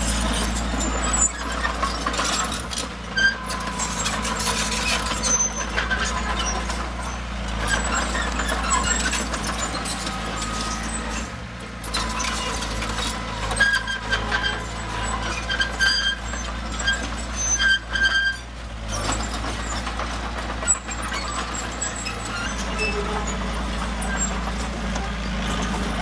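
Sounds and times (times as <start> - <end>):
heavy diesel machinery running: 0.0 - 26.0.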